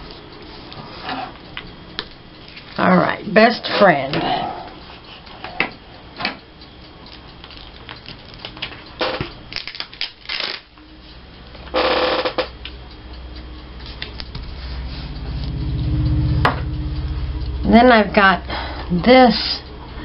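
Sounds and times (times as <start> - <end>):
low hum: 12.6 - 20.0.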